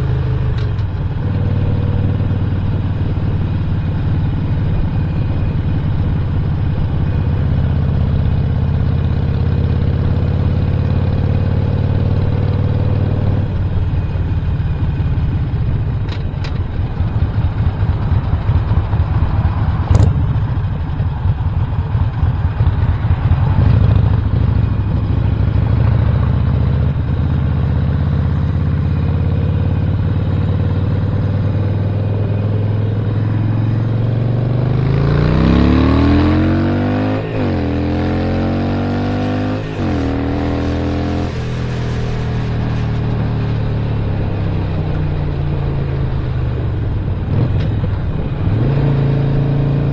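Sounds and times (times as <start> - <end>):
motorcycle engine accelerating: 0.0 - 49.9.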